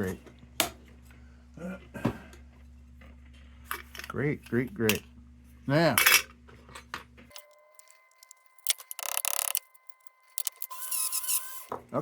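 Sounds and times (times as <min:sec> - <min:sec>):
metal lantern parts clinking: 0:07.3 - 0:10.7.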